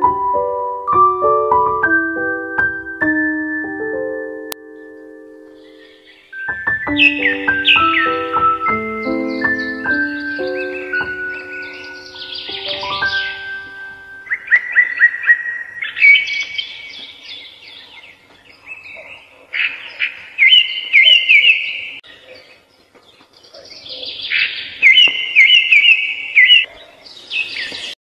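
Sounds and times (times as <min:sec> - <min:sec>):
songbird singing: 0:00.0 - 0:28.0.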